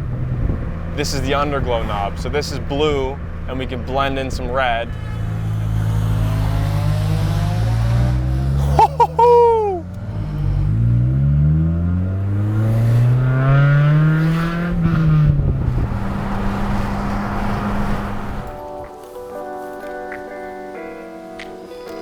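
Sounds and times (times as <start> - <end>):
car engine accelerating hard: 0.0 - 18.8
loud exhaust: 4.0 - 18.6.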